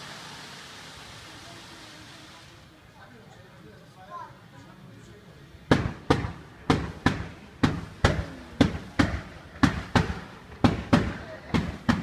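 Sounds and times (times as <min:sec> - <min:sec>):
fireworks launch thumps: 0:05.7 - 0:12.0.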